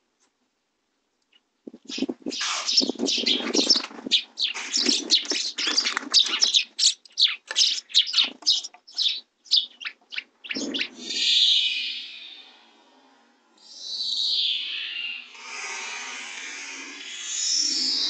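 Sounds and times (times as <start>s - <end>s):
sparrows chirping: 1.3s - 12.6s, 13.6s - 15.3s.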